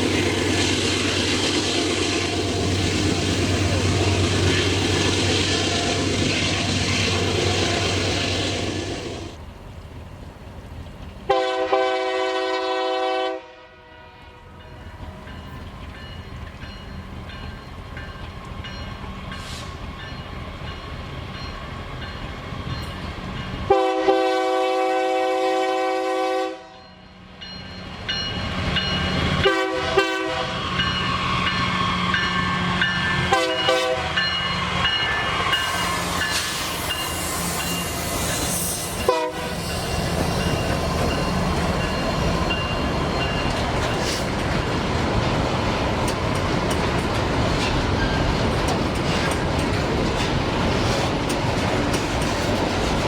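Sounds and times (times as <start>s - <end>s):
locomotive rumble: 0.0s - 12.6s, 27.8s - 53.0s
train air horn blasts: 11.3s - 14.8s, 23.7s - 27.0s, 29.3s - 34.3s, 35.5s - 40.2s
wagons clickety-clack: 46.0s - 53.0s.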